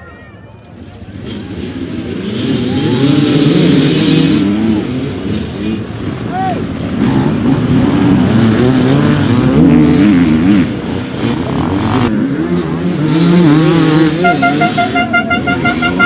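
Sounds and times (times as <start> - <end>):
dirt bike engine revving: 0.7 - 16.0
high pulsing horn-like tone: 14.0 - 16.0.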